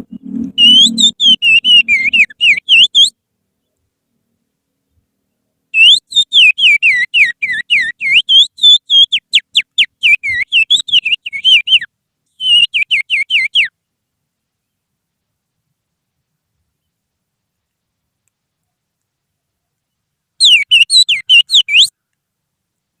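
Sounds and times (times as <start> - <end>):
finger whistling bird song: 0.0 - 3.2, 5.8 - 13.7, 20.4 - 21.9.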